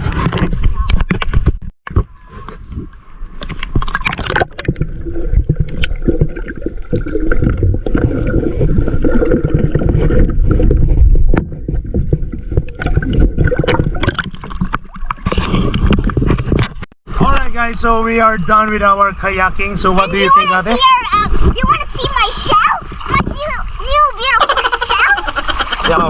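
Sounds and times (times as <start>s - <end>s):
water sloshing around kayak: 21.3s - 26.0s.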